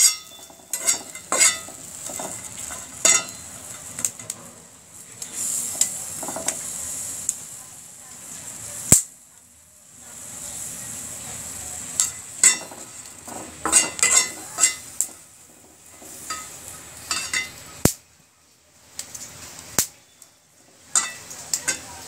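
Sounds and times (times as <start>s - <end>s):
spatula scraping a pan: 0.0s - 4.4s, 5.2s - 7.2s, 12.0s - 17.8s
oil sizzling in a pan: 0.0s - 22.0s.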